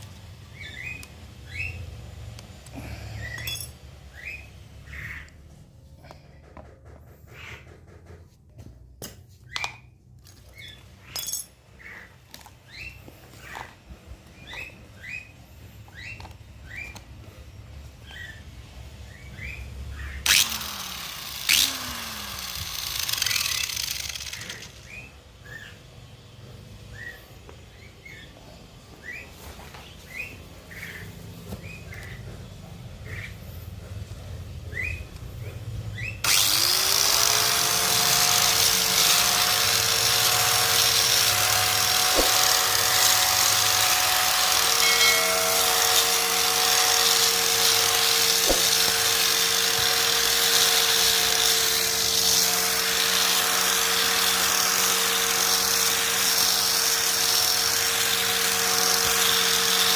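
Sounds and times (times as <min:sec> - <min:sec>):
small birds chirping: 0:00.5 - 0:05.6, 0:09.4 - 0:20.2, 0:24.4 - 0:33.7, 0:34.6 - 0:36.3
grass cutter motor whining: 0:20.2 - 0:25.7, 0:36.0 - 0:59.9.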